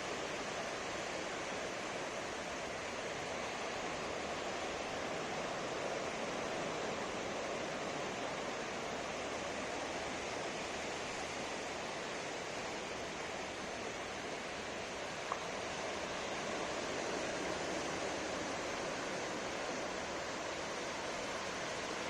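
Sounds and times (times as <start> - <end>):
ocean surf washing onto shore: 0.0 - 22.0
faint click: 15.2 - 15.5.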